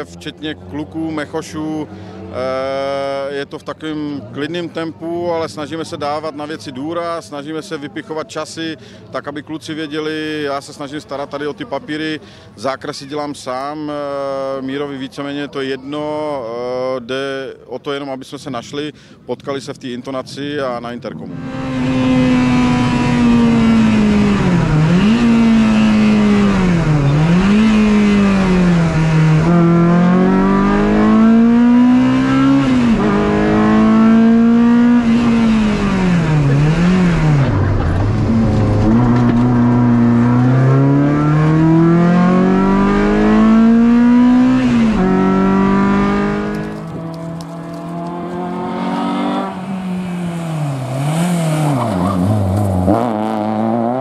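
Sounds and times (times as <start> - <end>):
rally car engine revving: 21.3 - 54.0.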